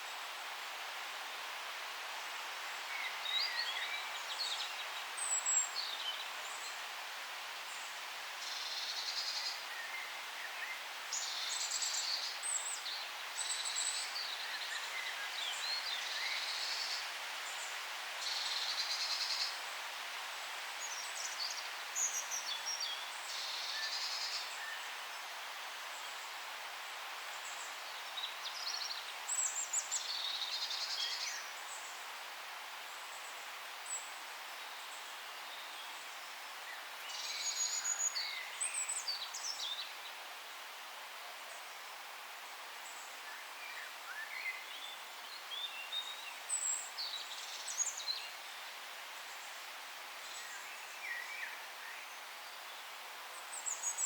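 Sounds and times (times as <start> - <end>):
forest background hiss: 0.0 - 54.0
songbirds singing: 20.8 - 40.3.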